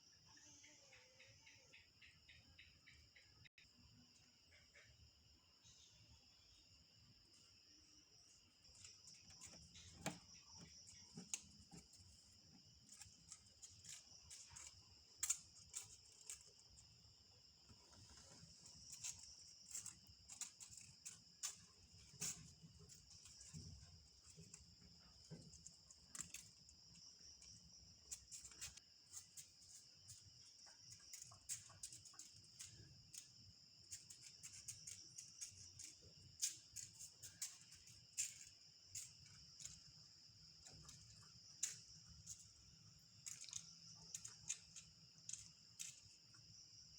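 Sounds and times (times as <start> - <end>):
crickets trilling: 0.0 - 46.9
light clicks and taps: 43.2 - 46.4.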